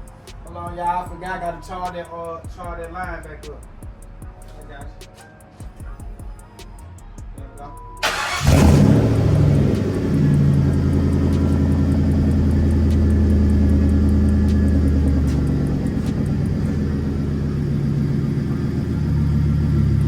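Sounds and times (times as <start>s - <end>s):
car engine idling: 8.0s - 20.0s.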